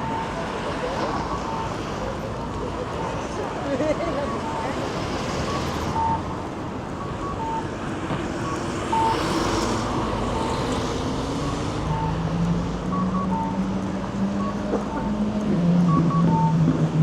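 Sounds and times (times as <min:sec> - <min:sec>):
traffic passing: 0:00.0 - 0:17.0
vehicle engine drone: 0:00.0 - 0:17.0
short electronic beeps: 0:04.0 - 0:06.4, 0:07.0 - 0:07.7, 0:08.4 - 0:09.4, 0:14.3 - 0:15.2, 0:15.8 - 0:16.8.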